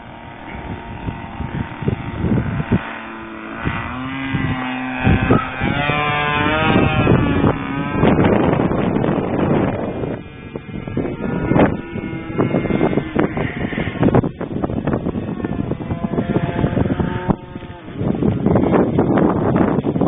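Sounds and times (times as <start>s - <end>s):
propeller airplane flying past: 0.0s - 20.0s
wind buffeting microphone: 0.0s - 20.0s.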